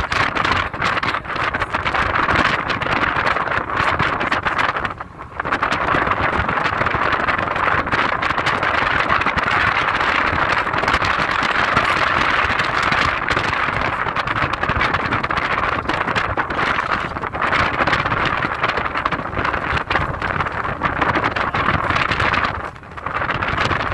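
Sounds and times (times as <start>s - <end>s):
car road and wind noise: 0.0s - 23.9s.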